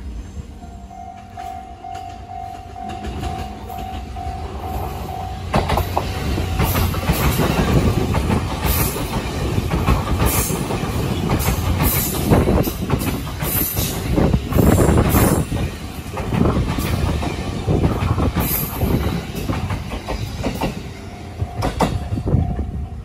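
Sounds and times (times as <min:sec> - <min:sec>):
express train rushing past: 0:00.0 - 0:23.0
train wheels clattering over rail joints: 0:05.5 - 0:22.7.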